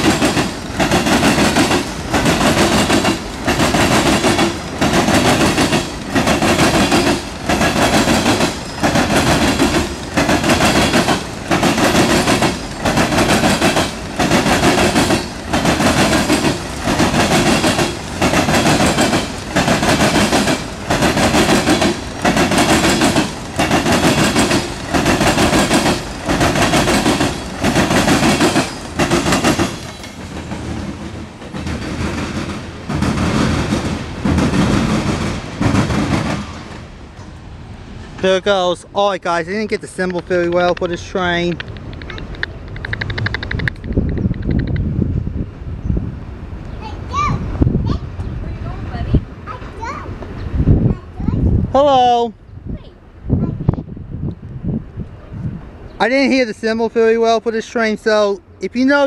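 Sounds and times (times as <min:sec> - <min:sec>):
freight train wheels clattering: 0:00.0 - 0:37.5, 0:39.3 - 0:45.0.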